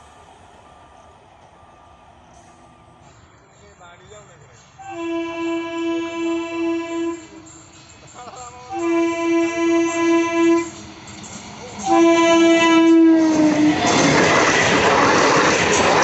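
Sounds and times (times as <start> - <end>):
train passing close by: 0.0 - 16.0
train horn blasts: 4.8 - 7.7, 8.7 - 10.9, 11.8 - 14.0.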